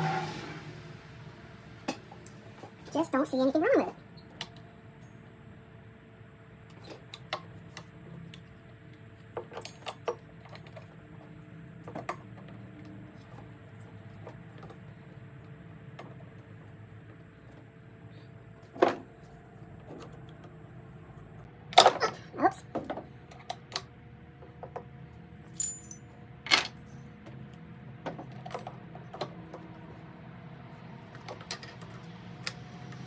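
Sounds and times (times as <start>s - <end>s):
metal parts clicking and clinking: 9.4s - 11.0s, 25.4s - 27.1s
metal parts clattering: 25.5s - 27.0s.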